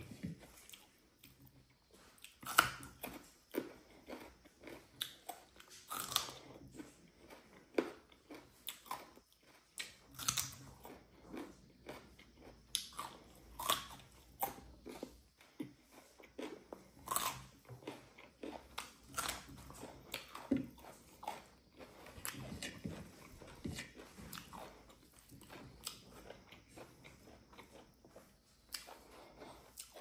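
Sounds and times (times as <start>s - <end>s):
crunchy bites: 0.0s - 30.0s
person chewing food: 0.0s - 30.0s.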